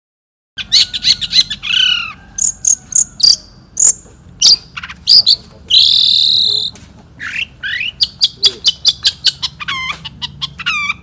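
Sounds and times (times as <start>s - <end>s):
bird singing sharp chips and whistles: 3.2s - 11.0s.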